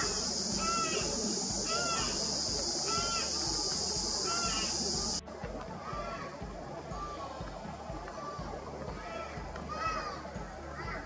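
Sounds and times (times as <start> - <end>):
short bird calls: 0.0 - 5.2
cicadas droning: 0.0 - 11.0.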